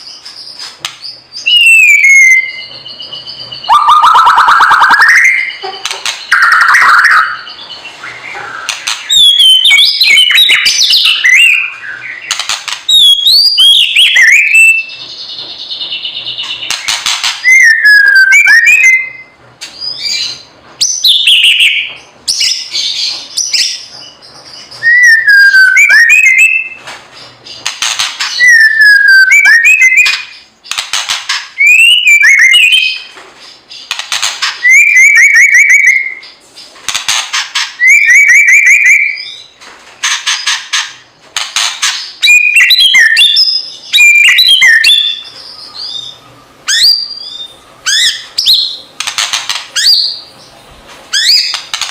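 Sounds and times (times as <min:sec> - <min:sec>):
bird whistling song: 0:00.0 - 0:30.9, 0:31.6 - 0:33.1, 0:33.7 - 0:36.4, 0:37.6 - 0:39.6, 0:42.0 - 0:50.5, 0:51.1 - 0:51.7.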